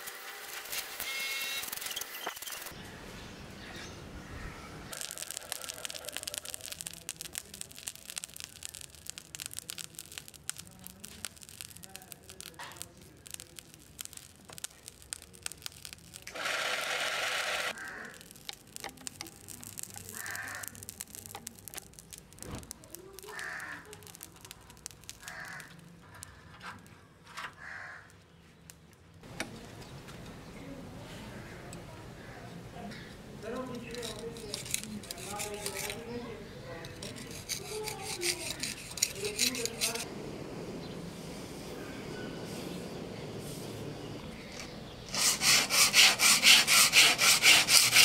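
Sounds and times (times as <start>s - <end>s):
charcoal fire crackling: 0.0s - 48.0s
loud hiss: 4.9s - 26.0s, 37.2s - 48.0s.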